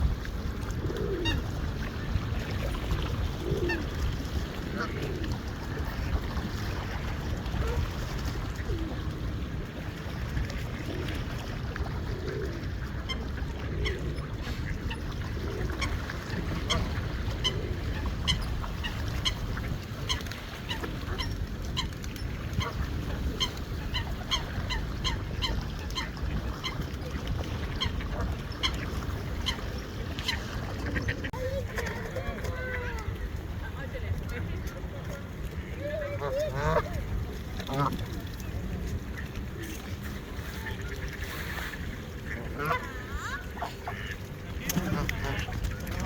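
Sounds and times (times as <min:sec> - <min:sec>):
geese and ducks honking: 0:36.0 - 0:37.0, 0:37.6 - 0:38.0, 0:40.7 - 0:46.0.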